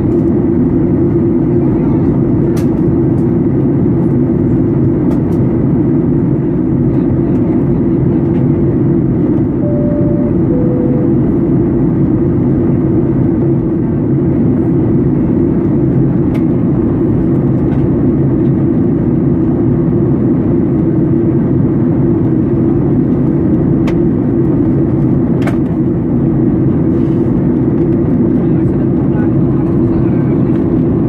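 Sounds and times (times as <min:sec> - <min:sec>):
airliner engine rumble in cabin: 0:00.0 - 0:31.0
two-tone cabin chime: 0:09.6 - 0:11.8.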